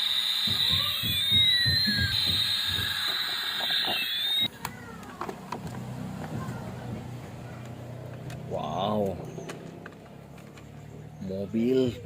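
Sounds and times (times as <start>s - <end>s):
steady high electronic tone: 0.0s - 4.5s.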